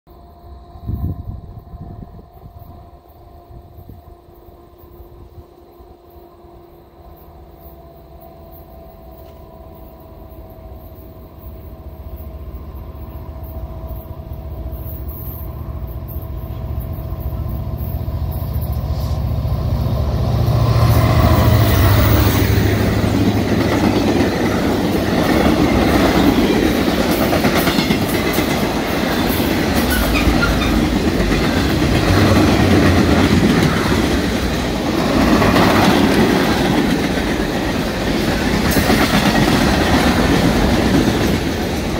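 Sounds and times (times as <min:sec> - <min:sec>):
train wheels on rails: 0:02.3 - 0:41.9
diesel locomotive rumble: 0:09.1 - 0:41.9.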